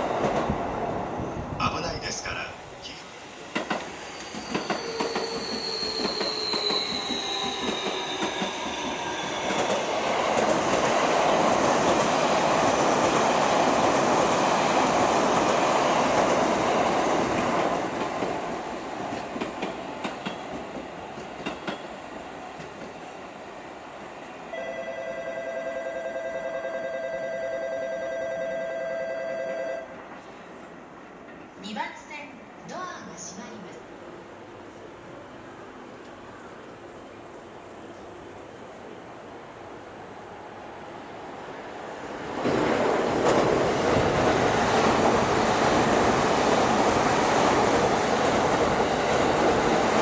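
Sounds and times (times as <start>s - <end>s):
train wheels rushing on rail: 0.0s - 24.5s, 34.6s - 50.0s.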